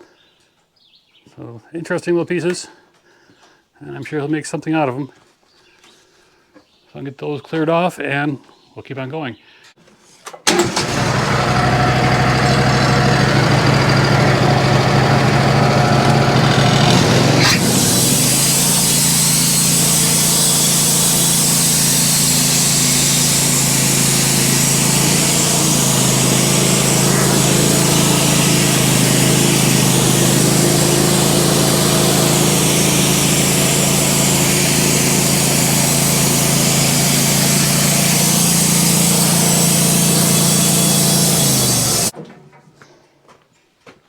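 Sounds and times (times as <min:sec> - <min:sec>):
bandsaw cutting log: 0:10.5 - 0:42.1.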